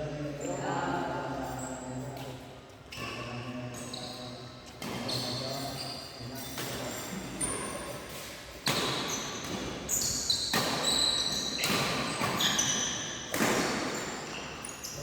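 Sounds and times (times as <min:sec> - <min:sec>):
shoes squeaking on court: 0:00.4 - 0:15.0
racket hitting shuttlecock: 0:08.6 - 0:09.8, 0:10.4 - 0:14.0.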